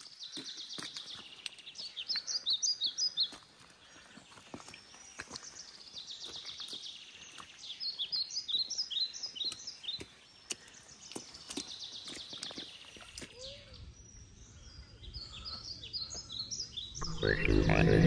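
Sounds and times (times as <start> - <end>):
songbirds chirping and trilling: 0.0 - 18.0.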